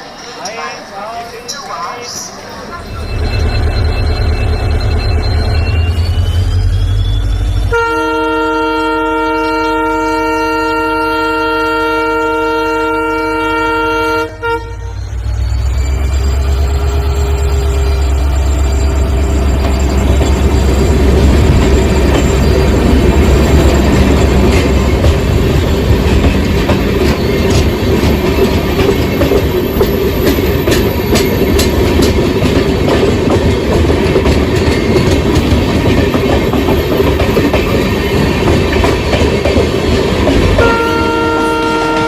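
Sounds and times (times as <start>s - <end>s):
locomotive engine whining: 2.4s - 42.0s
locomotive horn blast: 7.5s - 15.2s, 16.0s - 19.3s, 40.6s - 42.0s.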